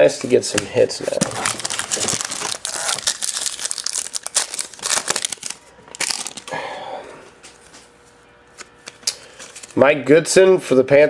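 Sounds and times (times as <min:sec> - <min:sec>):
foil wrapper crinkling and tearing: 0:00.5 - 0:06.6.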